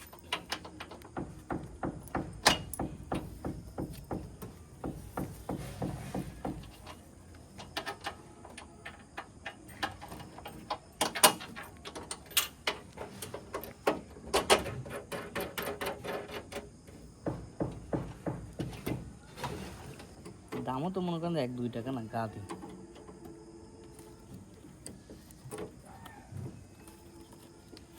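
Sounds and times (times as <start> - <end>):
irregular knocks and clatter: 0.0 - 20.9.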